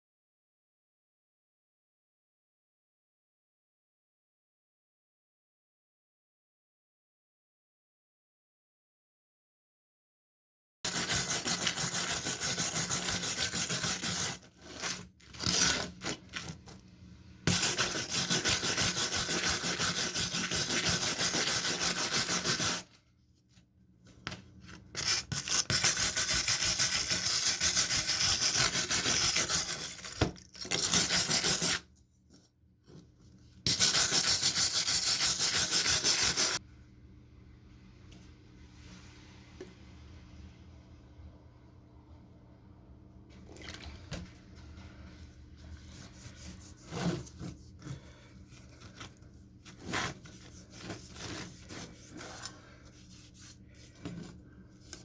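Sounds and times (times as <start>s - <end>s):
abrasive scrubbing on knife blade: 17.5s - 22.8s, 25.0s - 31.8s, 33.7s - 36.6s.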